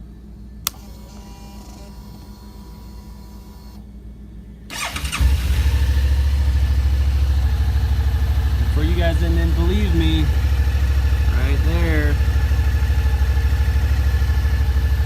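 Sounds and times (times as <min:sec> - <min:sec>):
faint whir: 0:00.0 - 0:15.0
switch click: 0:00.6 - 0:03.8
motorcycle engine starting and idling: 0:00.6 - 0:03.9, 0:04.7 - 0:15.0.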